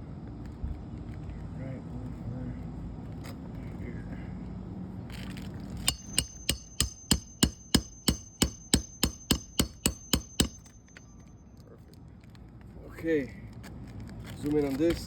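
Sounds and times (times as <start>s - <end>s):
hammer driving nail: 5.9s - 11.0s.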